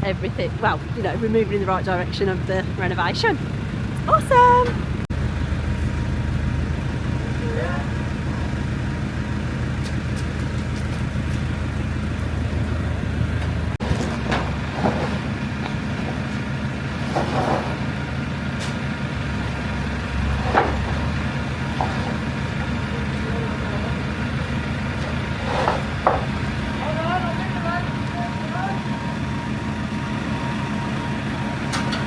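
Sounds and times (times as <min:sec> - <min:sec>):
heavy machinery diesel engine: 0:00.0 - 0:32.0
metal clanks and squeaks: 0:13.4 - 0:18.9, 0:20.2 - 0:22.7, 0:25.0 - 0:26.4, 0:31.6 - 0:32.0.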